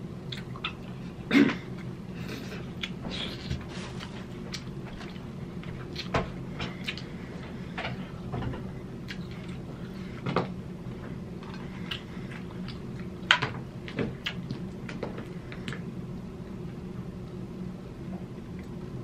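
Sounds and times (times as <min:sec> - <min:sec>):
steady low hum: 0:00.0 - 0:19.0
chewing crab meat: 0:00.2 - 0:08.0, 0:09.0 - 0:10.2, 0:10.9 - 0:15.9.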